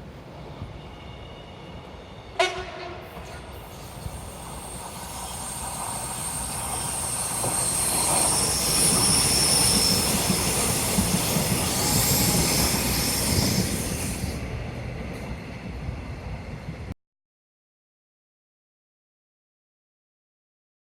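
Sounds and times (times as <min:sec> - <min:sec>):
train rumble: 0:00.0 - 0:17.0
train wheels squealing: 0:00.2 - 0:02.4, 0:03.1 - 0:14.5.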